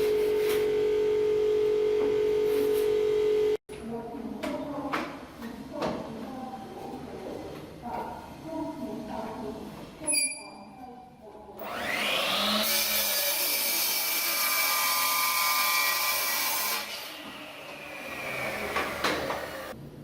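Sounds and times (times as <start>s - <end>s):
power tool whining on wood: 11.6s - 16.6s, 17.2s - 19.8s.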